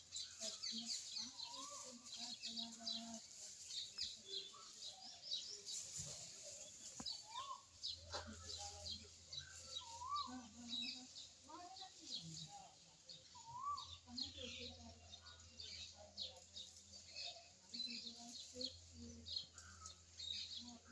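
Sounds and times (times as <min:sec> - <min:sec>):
small birds chirping rapidly: 0:00.0 - 0:20.9
lower rising and falling bird calls: 0:13.2 - 0:14.0.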